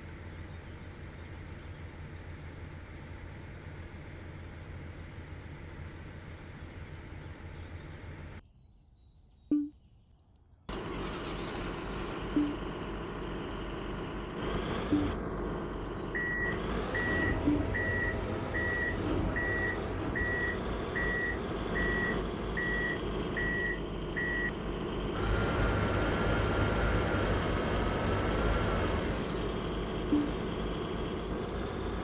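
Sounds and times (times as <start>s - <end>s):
diesel truck engine: 0.0s - 8.4s, 10.7s - 32.0s
engine whine: 0.0s - 8.4s, 10.7s - 32.0s
reversing alarm beeping: 12.3s - 12.6s, 16.2s - 24.6s, 30.1s - 30.4s.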